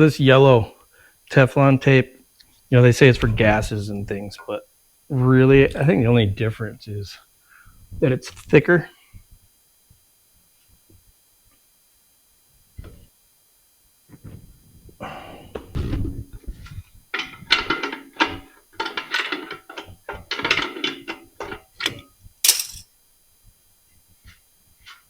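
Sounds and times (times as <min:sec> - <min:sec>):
metallic clinks and scraping: 0:15.6 - 0:22.9.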